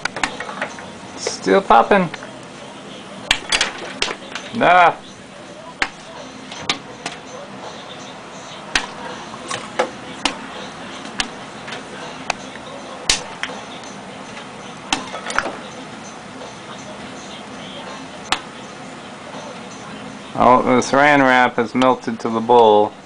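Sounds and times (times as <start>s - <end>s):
popcorn popping in microwave: 0.0s - 2.4s, 3.2s - 7.3s, 8.7s - 15.7s
low steady microwave hum: 0.0s - 23.0s.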